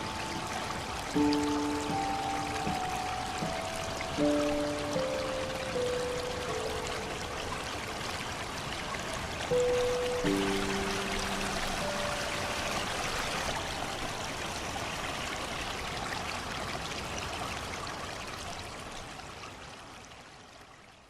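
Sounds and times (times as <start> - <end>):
soft held melody note: 0.0 - 7.9, 9.5 - 13.5
running water rushing: 0.0 - 20.7.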